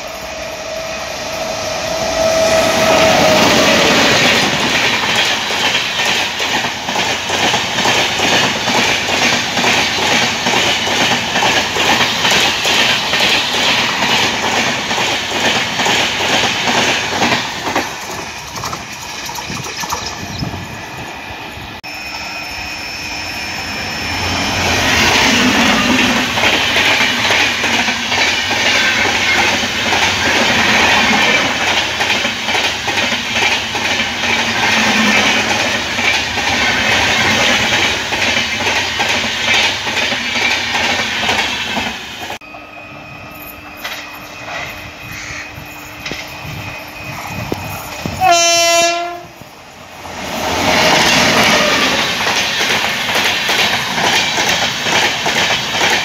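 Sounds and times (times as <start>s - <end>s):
approaching train rumble: 0.0s - 56.0s
train rushing past: 0.0s - 56.0s
train horn blast: 48.1s - 49.4s.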